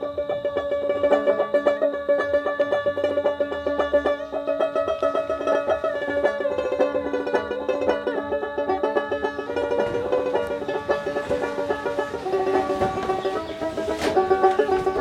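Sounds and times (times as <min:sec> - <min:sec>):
plucked lute: 0:00.0 - 0:15.0.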